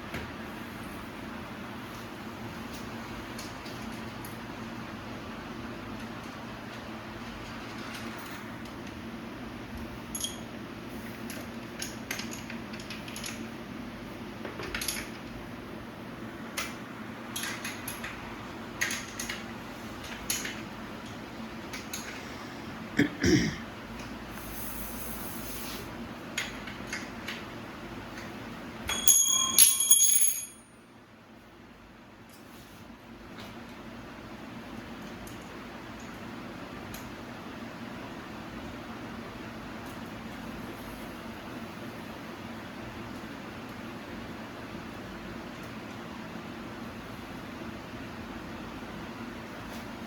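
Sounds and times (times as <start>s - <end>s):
small metal clicks and clinks: 28.9s - 30.7s
bicycle bell ringing: 28.9s - 30.8s.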